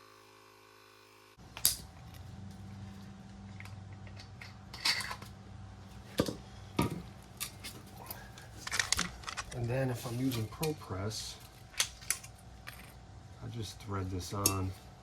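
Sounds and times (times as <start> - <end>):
steady low hum: 1.1 - 15.0
metallic clicks of tools: 14.4 - 14.7.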